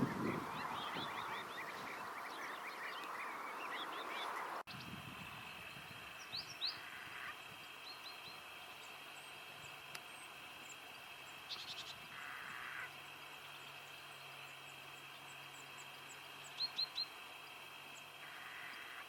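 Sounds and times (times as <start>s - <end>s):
small birds chirping: 0.0s - 19.0s
high insect drone: 4.8s - 19.0s.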